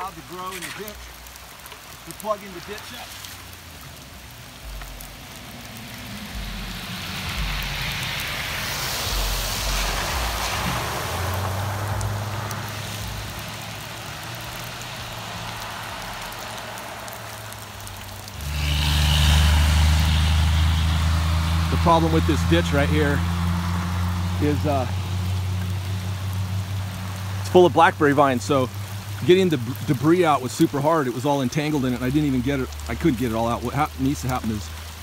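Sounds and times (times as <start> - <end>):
rushing noise: 4.3 - 29.1
vehicle engine running: 17.9 - 29.2.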